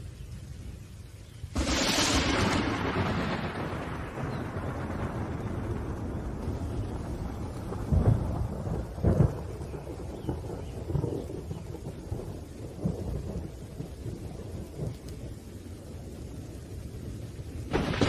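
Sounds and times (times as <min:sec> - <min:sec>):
steady rain: 0:00.0 - 0:18.0
thunder rumbling: 0:01.5 - 0:18.0
loud thunder claps: 0:01.6 - 0:15.2, 0:17.7 - 0:18.0.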